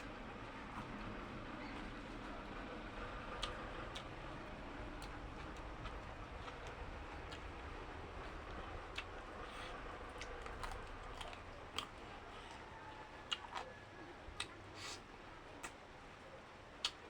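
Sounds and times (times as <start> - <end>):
faint low hum: 0.0 - 17.0
chewing clicks and smacks: 3.4 - 4.2, 4.9 - 13.8, 16.8 - 17.0.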